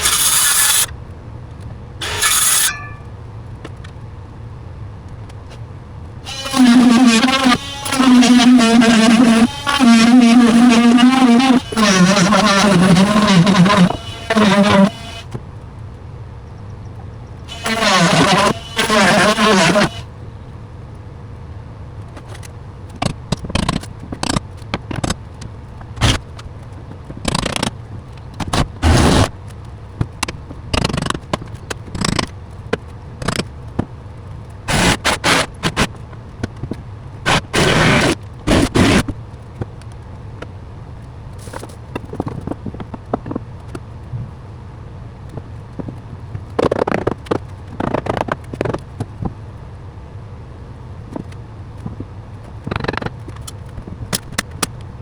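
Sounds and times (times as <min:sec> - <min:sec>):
scraping: 0:00.0 - 0:00.9, 0:02.0 - 0:03.1, 0:06.3 - 0:15.3, 0:17.5 - 0:20.0.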